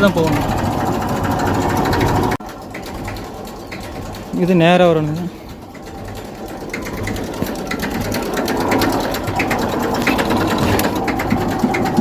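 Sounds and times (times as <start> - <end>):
tractor diesel engine clattering: 0.0 - 12.0.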